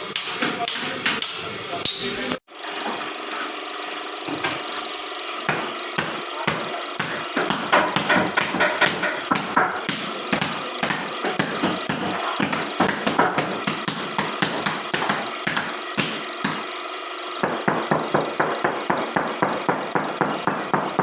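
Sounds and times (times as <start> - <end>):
tool tapping on tiles: 5.5 - 16.6.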